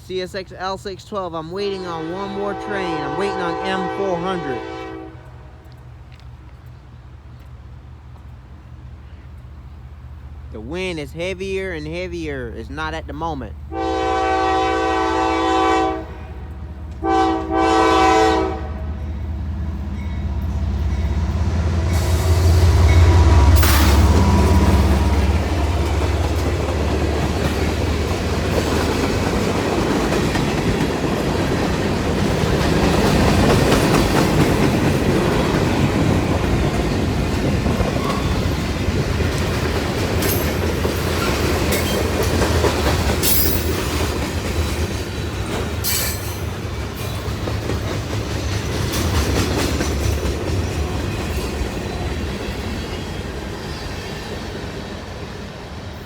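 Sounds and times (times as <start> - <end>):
train clanks: 16.4 - 56.0
freight train wheels clacking: 18.8 - 55.6.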